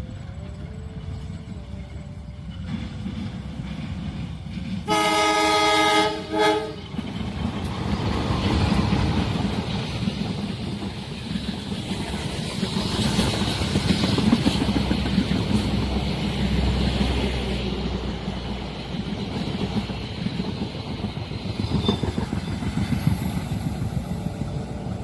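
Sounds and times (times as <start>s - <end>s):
train rumble and wheel noise: 0.0s - 25.0s
train horn blasts: 4.8s - 6.9s.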